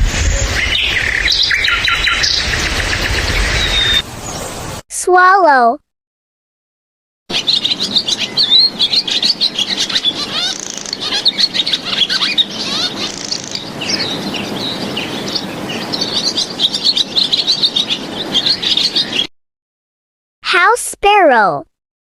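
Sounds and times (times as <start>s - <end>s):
swallow twittering: 7.3s - 19.3s.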